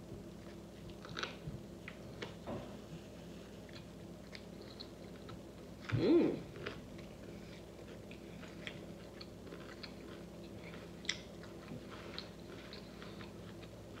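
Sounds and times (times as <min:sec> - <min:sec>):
person chewing food: 0:00.2 - 0:02.4, 0:03.2 - 0:14.0.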